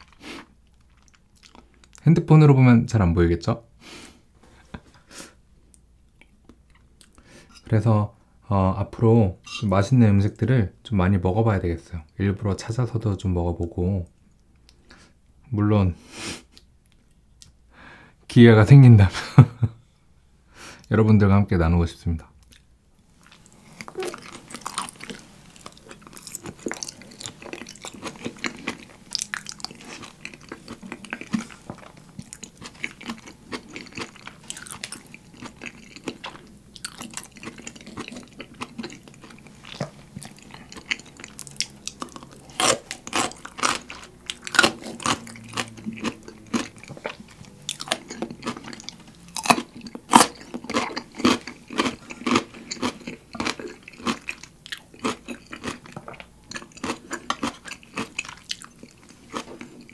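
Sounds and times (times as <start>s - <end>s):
wet chewing and mouth clicks: 0.0s - 2.0s, 22.4s - 59.9s
crunching bites: 23.3s - 59.6s.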